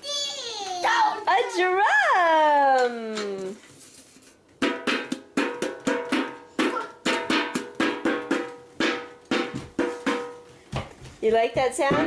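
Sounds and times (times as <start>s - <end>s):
hand drum beating: 4.6s - 10.5s, 11.5s - 12.0s.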